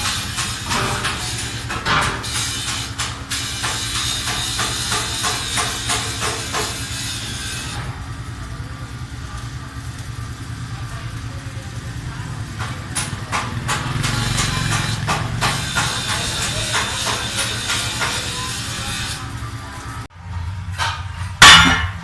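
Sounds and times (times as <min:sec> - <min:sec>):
hammer strikes: 0:00.0 - 0:06.9, 0:12.6 - 0:18.5, 0:20.7 - 0:22.0.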